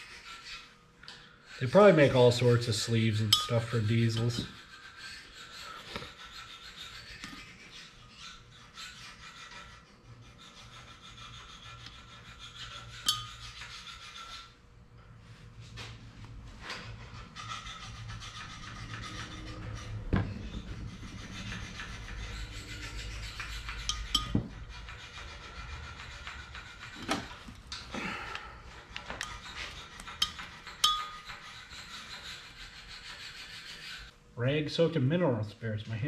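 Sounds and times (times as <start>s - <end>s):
rag rubbing and scrubbing: 0.0s - 14.6s, 15.7s - 34.1s
sharp knocks and clinks: 3.3s - 4.5s, 23.8s - 24.6s, 30.2s - 31.5s.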